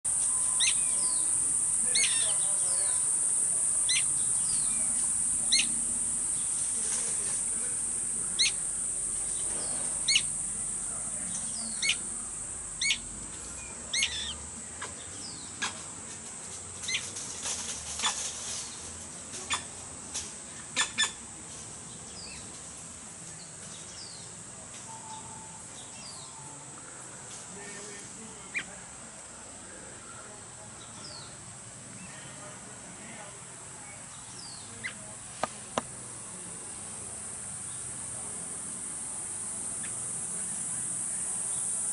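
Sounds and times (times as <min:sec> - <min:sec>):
sharp high bird chirps: 0:00.1 - 0:06.5, 0:08.3 - 0:08.6, 0:09.2 - 0:10.4, 0:12.8 - 0:13.0, 0:13.9 - 0:14.4
high-pitched hiss: 0:00.1 - 0:14.8, 0:23.8 - 0:41.9.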